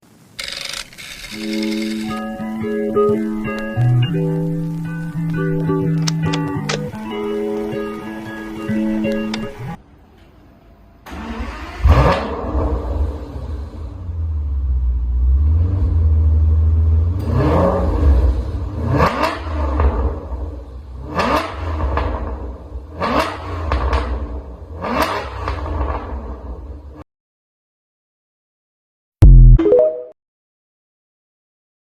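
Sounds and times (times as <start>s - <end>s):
car engine starting: 11.0s - 27.0s
engine revving: 11.1s - 27.0s.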